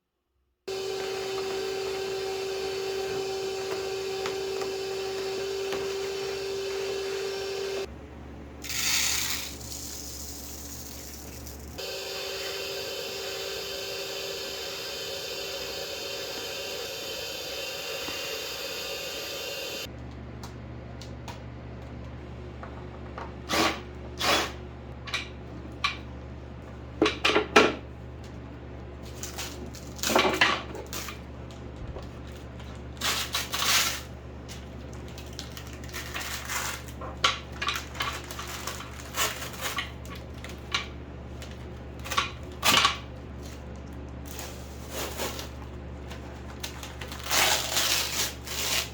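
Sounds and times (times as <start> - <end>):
steady hissing: 11.8 - 19.9.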